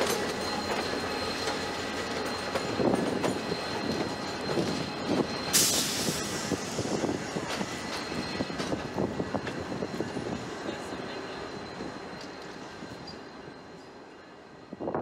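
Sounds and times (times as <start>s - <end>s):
train wheels clicking over rail joints: 0.0s - 10.6s
faint steady wheel squeal: 0.0s - 15.0s.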